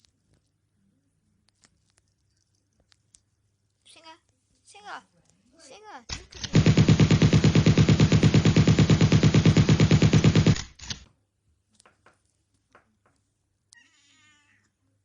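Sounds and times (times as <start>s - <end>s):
machine-gun fire: 6.1s - 11.0s.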